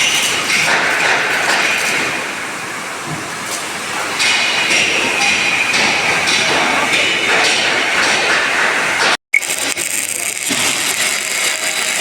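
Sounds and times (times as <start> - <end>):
welding arc crackling: 9.3 - 12.0.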